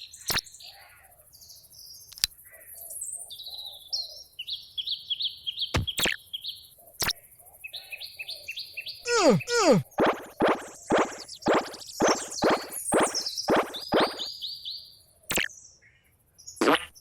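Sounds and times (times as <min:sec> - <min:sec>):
sharp clicks: 0:02.1 - 0:02.3, 0:05.8 - 0:06.2, 0:09.1 - 0:14.3
bird chirping: 0:05.3 - 0:06.7, 0:09.1 - 0:15.5.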